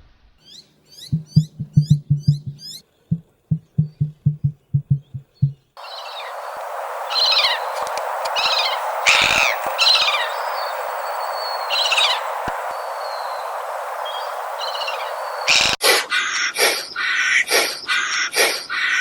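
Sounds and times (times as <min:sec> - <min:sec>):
steady hiss: 0:00.7 - 0:04.5, 0:05.8 - 0:15.8
bird downward-sliding call: 0:05.8 - 0:15.8.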